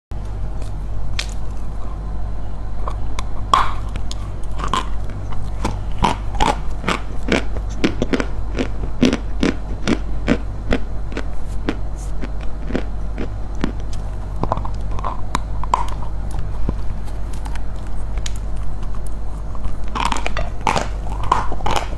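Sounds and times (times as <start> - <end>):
steady low hum: 0.1 - 21.9
chalk being chewed: 0.5 - 2.1, 2.8 - 21.9.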